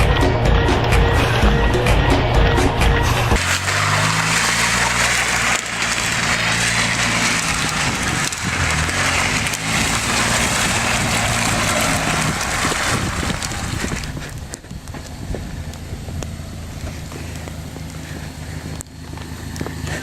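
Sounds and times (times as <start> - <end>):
car engine running: 0.0 - 20.0
plastic trays scraping on pavement: 3.4 - 15.0.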